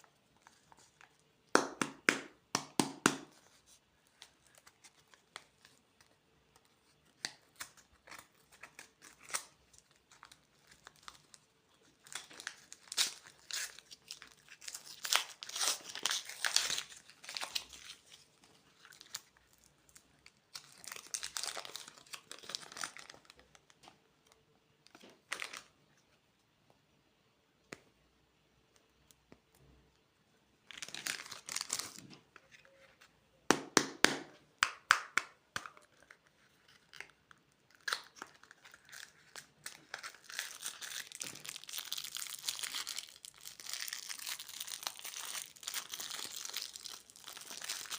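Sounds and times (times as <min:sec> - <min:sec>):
plastic candy wrappers crinkling: 0:04.2 - 0:25.8, 0:30.6 - 0:33.0, 0:35.5 - 0:47.9.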